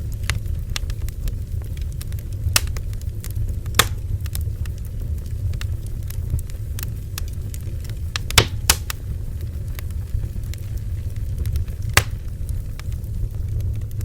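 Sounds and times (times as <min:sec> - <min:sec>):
bonfire rumbling: 0:00.0 - 0:14.0
burning wood crackling and popping: 0:00.0 - 0:14.0.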